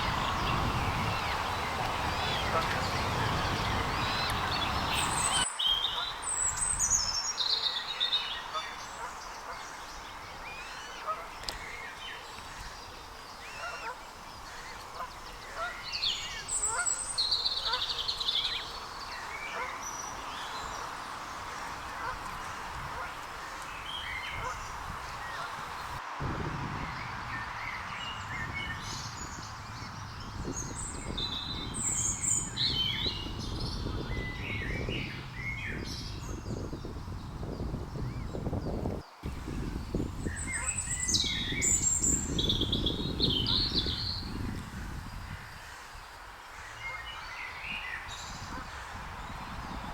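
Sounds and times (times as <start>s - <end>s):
waterbirds calling: 0.0s - 26.0s, 27.2s - 49.9s
wild birds chirping: 0.0s - 26.0s, 26.8s - 49.9s
outdoor hiss: 9.4s - 26.3s.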